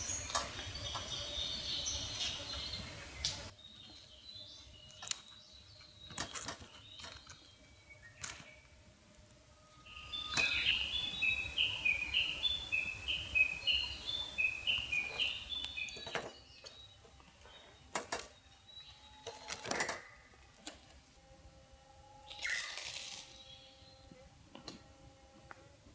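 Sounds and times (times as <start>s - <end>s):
bird singing high notes: 9.8s - 16.0s.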